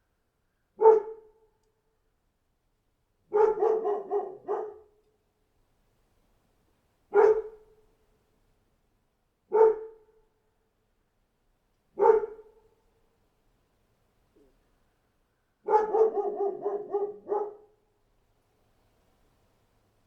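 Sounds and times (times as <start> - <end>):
dog barking: 0.8 - 1.4, 3.3 - 5.0, 7.1 - 7.7, 9.5 - 10.1, 12.0 - 12.7, 15.6 - 17.8.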